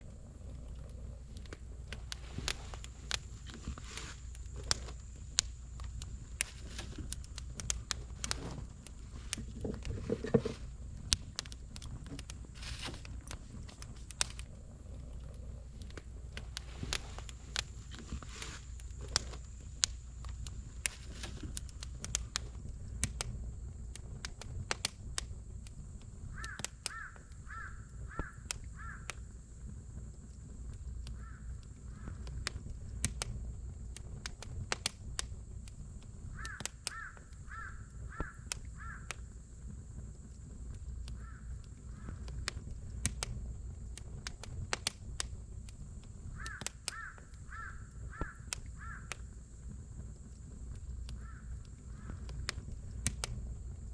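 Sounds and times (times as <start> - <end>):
campfire crackling and popping: 0.0 - 53.9
bird calling: 26.3 - 29.1, 31.1 - 32.3, 36.3 - 39.3, 41.1 - 42.4, 46.3 - 49.3, 51.1 - 52.4.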